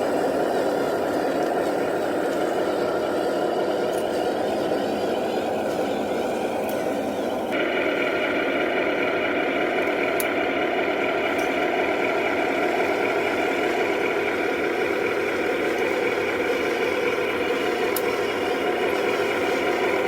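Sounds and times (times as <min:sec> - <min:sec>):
remote-control truck whine: 0:00.0 - 0:20.0
faint clicks: 0:09.8 - 0:10.4.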